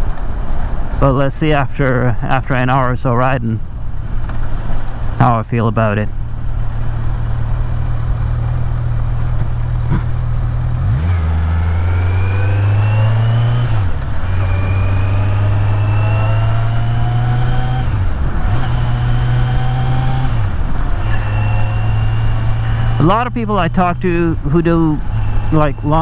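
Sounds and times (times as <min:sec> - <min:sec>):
motorcycle engine accelerating: 0:06.0 - 0:26.0.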